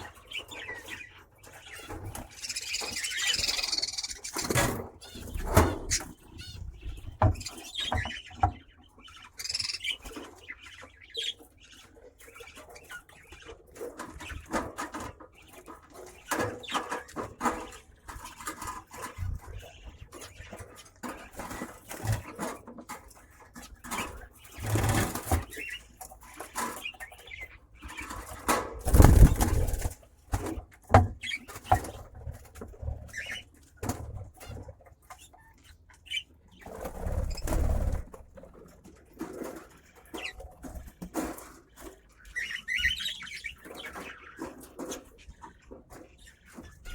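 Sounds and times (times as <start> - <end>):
bird chirps: 0.0 - 13.6
birds flapping wings: 28.5 - 30.6.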